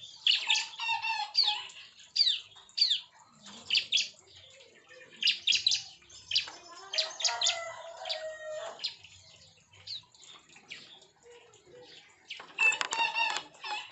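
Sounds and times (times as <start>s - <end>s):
birds chirping sharp high calls: 0.0s - 13.9s
rooster crowing: 7.0s - 8.8s.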